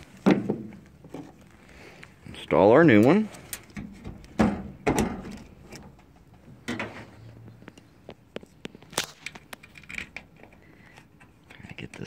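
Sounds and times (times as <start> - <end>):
handling clicks and knocks: 7.6 - 12.0.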